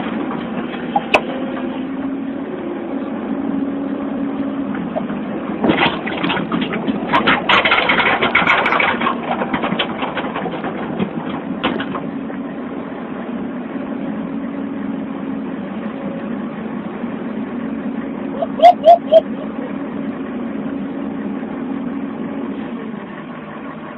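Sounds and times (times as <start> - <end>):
excavator engine running: 0.0 - 23.9
clattering and cracking: 5.6 - 12.1.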